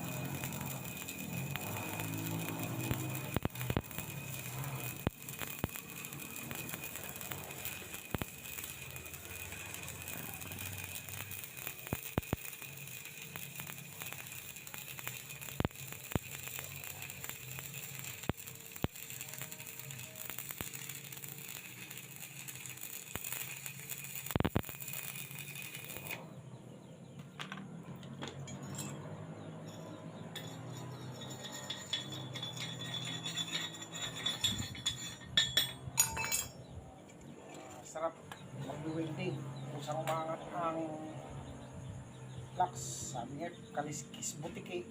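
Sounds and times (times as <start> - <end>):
arc welding crackling: 0.0 - 44.9
light metallic clinks: 27.3 - 38.4.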